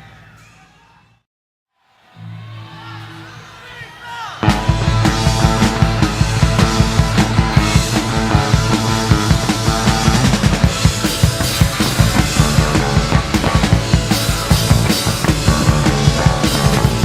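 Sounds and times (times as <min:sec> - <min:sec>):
drum kit fast beat: 0:04.4 - 0:17.0
punk rock band playing live: 0:04.4 - 0:17.0.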